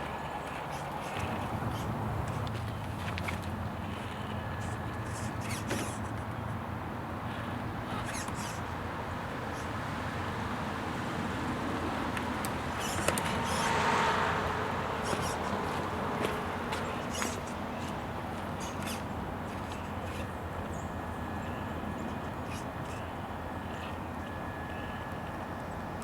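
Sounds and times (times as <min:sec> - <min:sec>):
small electric motor and gearbox: 0:00.3 - 0:06.4, 0:07.3 - 0:08.8, 0:12.4 - 0:20.8, 0:22.0 - 0:24.0.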